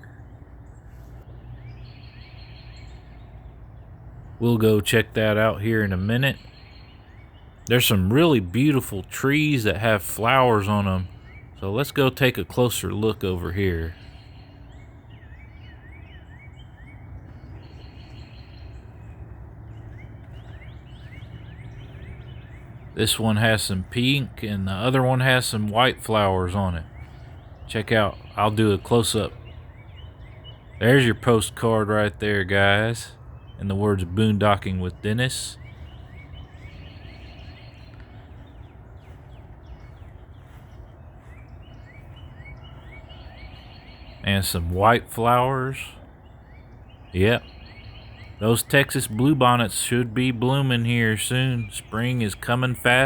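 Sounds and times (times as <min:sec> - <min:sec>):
high bird trill: 0:00.0 - 0:53.0
songbirds singing: 0:00.0 - 0:53.0
steady low rumble: 0:05.0 - 0:53.0.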